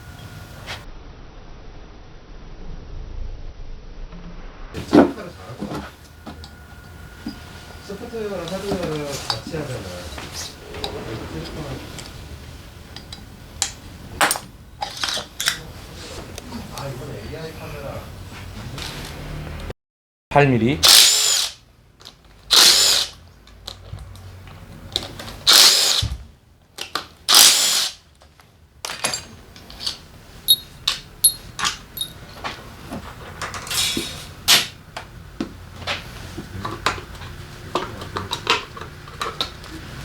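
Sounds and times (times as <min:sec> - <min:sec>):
power driver spinning: 0:20.8 - 0:21.6, 0:22.5 - 0:23.2, 0:25.3 - 0:26.1, 0:27.3 - 0:28.0
metallic clinks of bolts and tools: 0:28.9 - 0:32.2.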